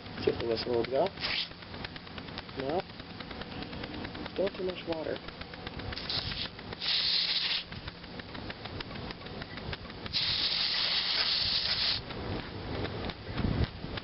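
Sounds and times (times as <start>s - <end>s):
water spurting: 3.7s - 8.3s
steam hissing from whistle: 6.8s - 7.6s, 10.2s - 12.0s.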